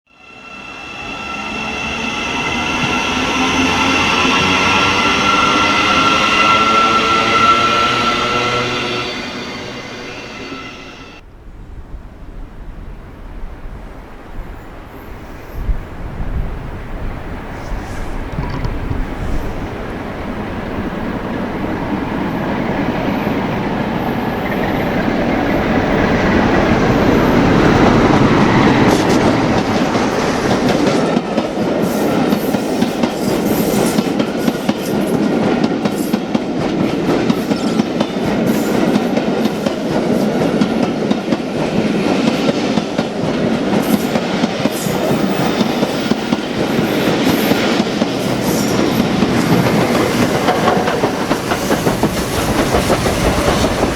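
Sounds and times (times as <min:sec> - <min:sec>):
train rumbling past: 0:00.1 - 0:53.9
train wheels clattering over joints: 0:18.2 - 0:19.7, 0:27.4 - 0:53.9.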